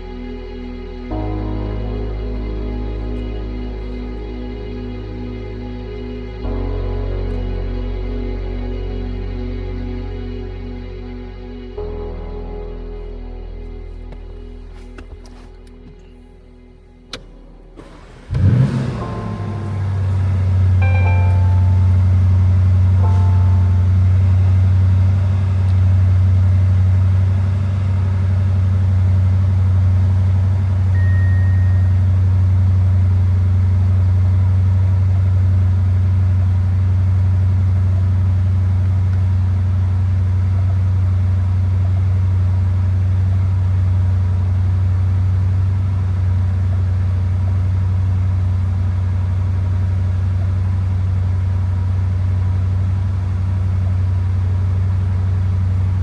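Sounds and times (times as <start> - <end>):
car engine idling: 11.8 - 56.0.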